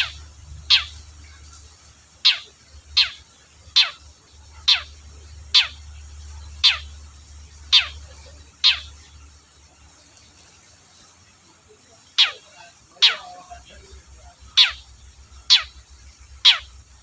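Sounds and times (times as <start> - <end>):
shrike harsh calls: 0.0 - 1.5, 2.1 - 9.1, 12.0 - 17.0.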